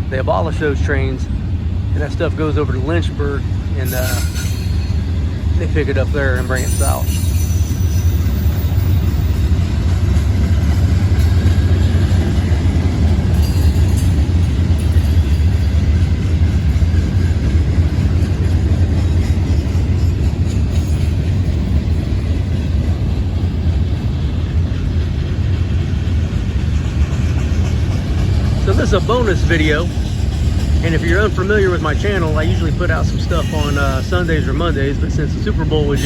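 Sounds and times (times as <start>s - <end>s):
steel wheels rumbling on rails: 0.0s - 36.0s.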